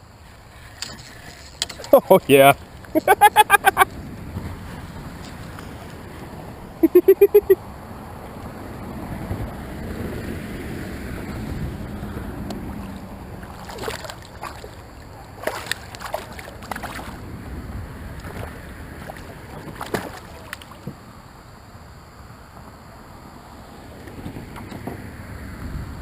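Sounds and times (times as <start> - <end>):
water splashing around kayak: 0.0 - 6.9, 9.0 - 21.4
wind rumble on microphone: 7.6 - 21.2, 22.4 - 26.0.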